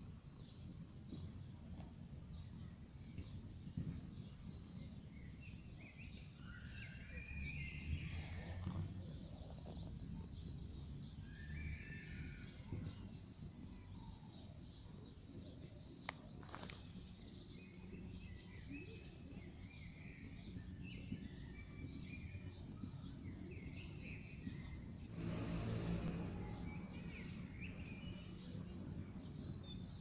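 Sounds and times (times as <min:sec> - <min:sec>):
small birds chirping: 0:00.0 - 0:25.1, 0:25.9 - 0:30.0
low rumble: 0:25.0 - 0:29.2.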